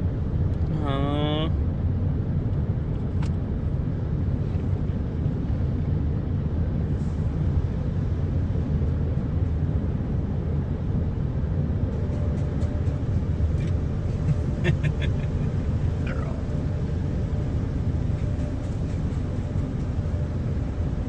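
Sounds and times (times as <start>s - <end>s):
car engine idling: 12.0s - 21.0s
car wash machinery rumbling: 12.0s - 21.0s.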